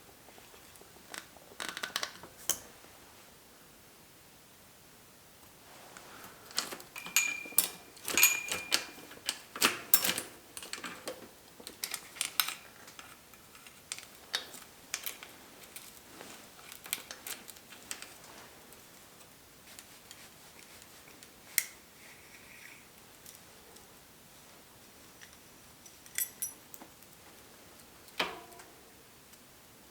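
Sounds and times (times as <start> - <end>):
metal tools clicking and clinking: 6.5 - 15.9, 25.2 - 26.7
metallic rings: 6.9 - 9.1.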